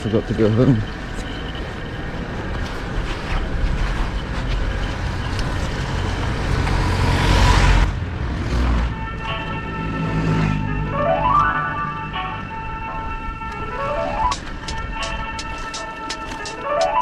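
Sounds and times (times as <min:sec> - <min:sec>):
street traffic rumble: 0:00.0 - 0:17.0
vehicle passing close: 0:04.4 - 0:13.2.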